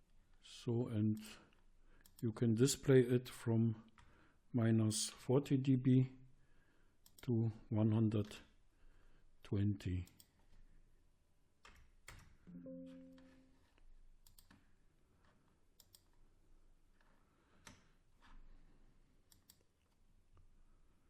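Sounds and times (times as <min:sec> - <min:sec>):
computer mouse clicks: 0:02.0 - 0:02.2, 0:07.0 - 0:07.3, 0:10.0 - 0:10.4, 0:14.2 - 0:16.2, 0:19.2 - 0:20.0
brief low steady tone: 0:12.5 - 0:13.5.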